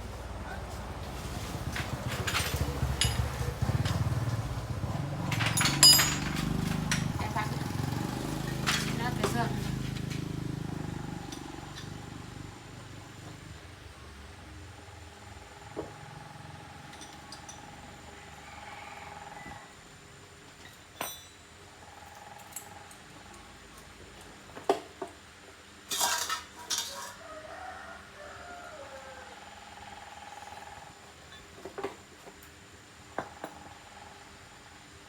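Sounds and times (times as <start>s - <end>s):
metallic clinks of hand tools: 2.2s - 3.6s, 5.3s - 7.1s, 21.0s - 21.4s.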